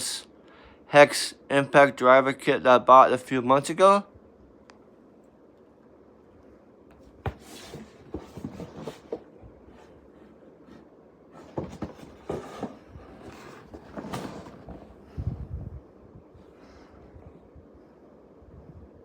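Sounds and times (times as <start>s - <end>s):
handling rustling: 6.9s - 15.1s.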